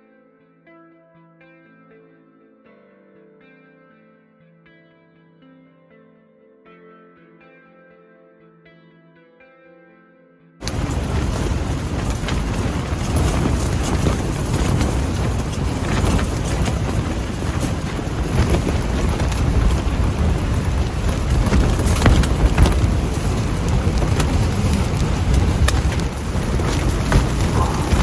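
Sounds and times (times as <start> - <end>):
strong wind buffeting microphone: 10.6 - 28.0.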